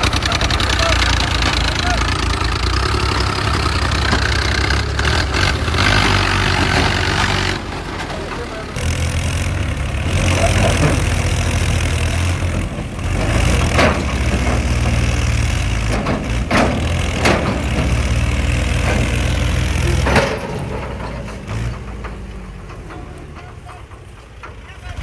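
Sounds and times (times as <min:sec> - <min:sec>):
tractor engine idling: 0:00.0 - 0:25.0
sharp knocks: 0:13.2 - 0:22.3.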